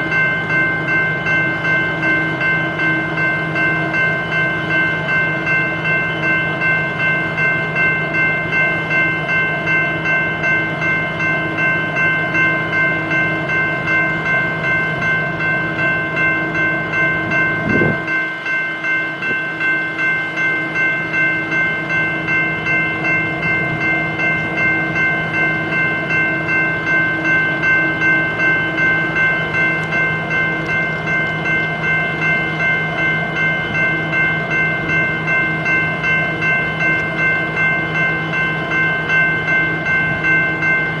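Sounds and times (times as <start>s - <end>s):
diesel locomotives idling: 0.0s - 41.0s
held whine: 0.0s - 41.0s.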